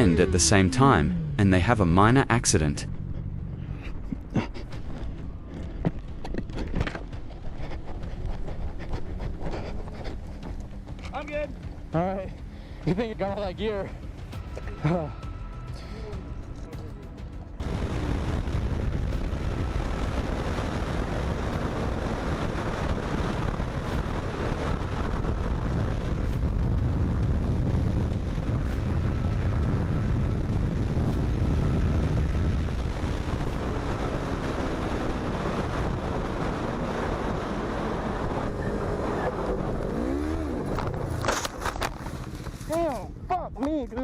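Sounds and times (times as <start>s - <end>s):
motorcycle engine rumble: 0.0s - 13.2s, 17.4s - 43.2s
wind noise on microphone: 17.6s - 42.6s.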